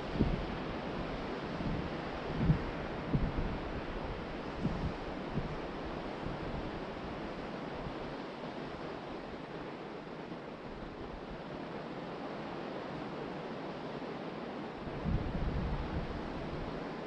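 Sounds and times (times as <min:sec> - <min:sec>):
wind buffeting microphone: 0:00.0 - 0:07.1, 0:14.8 - 0:16.9
ocean surf washing onto beach: 0:00.0 - 0:17.0.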